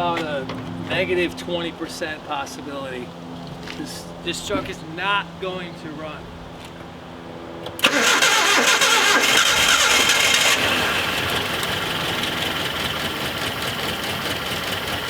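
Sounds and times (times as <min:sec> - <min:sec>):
car engine starting and idling: 0:07.7 - 0:15.0.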